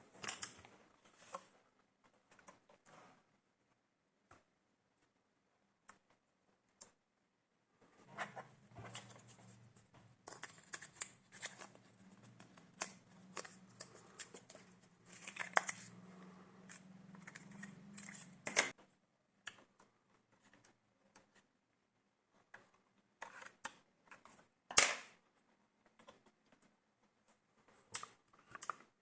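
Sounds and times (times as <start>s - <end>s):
clicks and scrapes of laptop parts: 8.0s - 18.9s, 22.4s - 25.1s.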